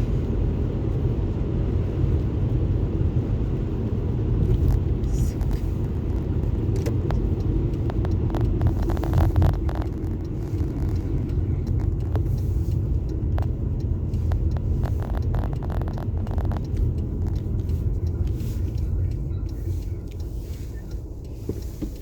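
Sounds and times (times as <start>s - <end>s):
road and engine rumble: 0.0s - 22.0s
faint clicks and ticks: 4.3s - 22.0s.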